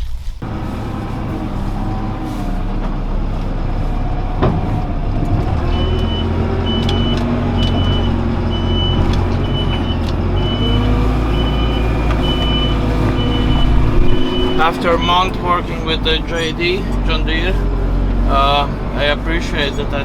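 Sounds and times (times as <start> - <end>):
diesel engine running: 0.4 - 20.0
reversing alarm beeping: 5.5 - 20.0.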